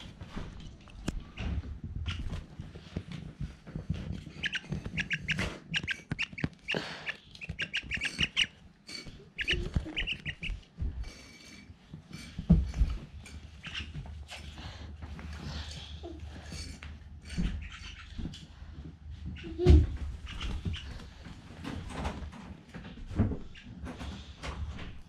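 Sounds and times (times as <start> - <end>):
myna harsh chattering calls: 4.4 - 8.6, 9.2 - 10.6.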